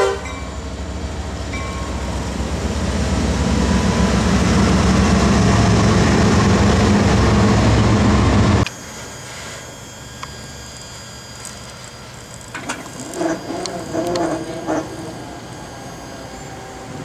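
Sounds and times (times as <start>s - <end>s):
diesel locomotive engine rumble: 0.0s - 17.0s
train cars rolling: 12.4s - 15.6s.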